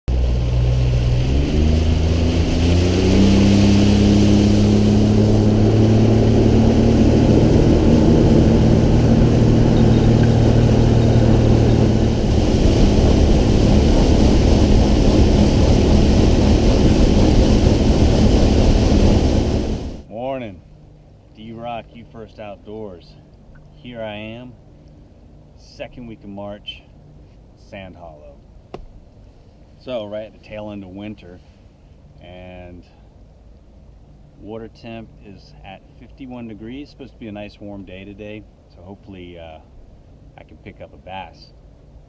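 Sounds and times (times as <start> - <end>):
engine running loudly: 0.1 - 20.0
noisy rush: 0.1 - 20.5.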